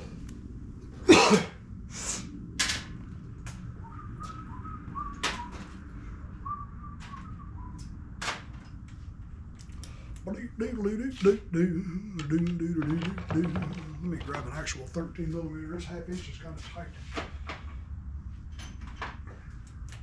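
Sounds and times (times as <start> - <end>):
faint wavering whistle: 3.6 - 8.2.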